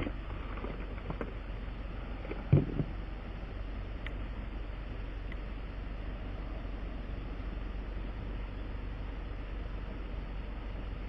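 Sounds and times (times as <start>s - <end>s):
low mechanical hum with rush: 0.0s - 11.0s
loud clunk: 2.3s - 2.9s.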